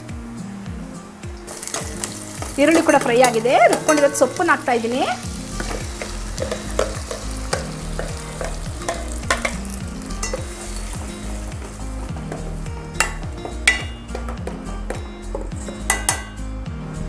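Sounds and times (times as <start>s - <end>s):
paste sizzling in a pot: 1.4s - 16.3s
spoon stirring and scraping pot: 5.4s - 14.6s.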